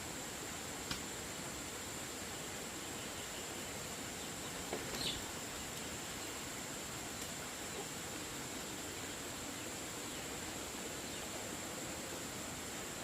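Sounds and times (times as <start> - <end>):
faint outdoor background noise: 0.0 - 13.0
insects droning: 0.0 - 13.0.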